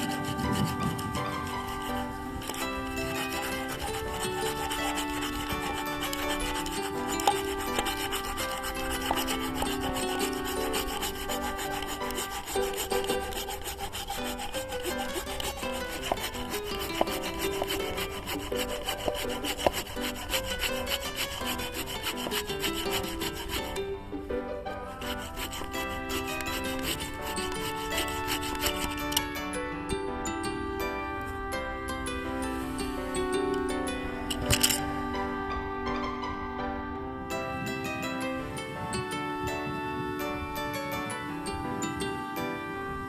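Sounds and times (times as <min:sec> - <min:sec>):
handsaw rasping through wood: 0:00.0 - 0:23.9, 0:24.6 - 0:29.5
background music: 0:00.0 - 0:43.0.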